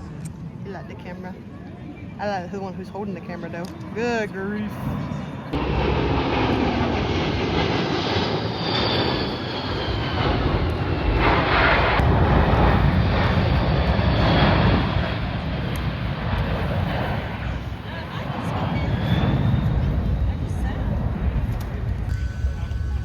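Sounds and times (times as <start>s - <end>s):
airplane flying past: 2.5s - 23.0s
faint high whine: 22.0s - 23.0s.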